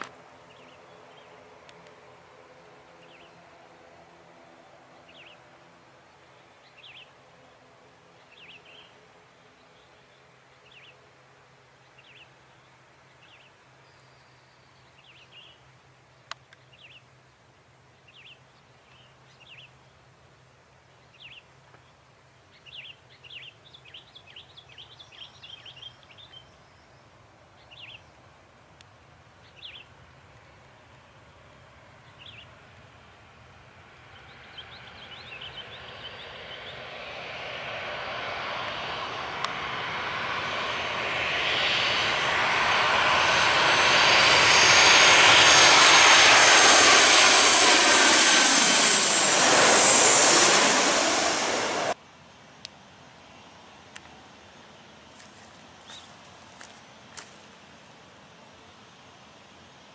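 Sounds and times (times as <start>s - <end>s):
distant jet engine hum: 29.7s - 52.0s
small birds chirping: 55.3s - 57.4s.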